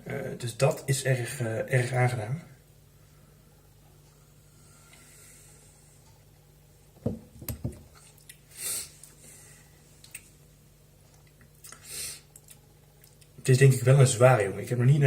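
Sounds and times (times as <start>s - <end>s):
man tasting mouth sounds: 11.6s - 12.6s.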